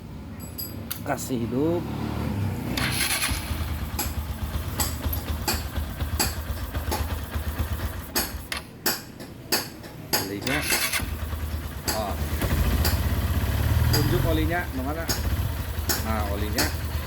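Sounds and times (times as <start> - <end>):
motorcycle engine idling: 2.8 - 8.7, 9.9 - 17.0.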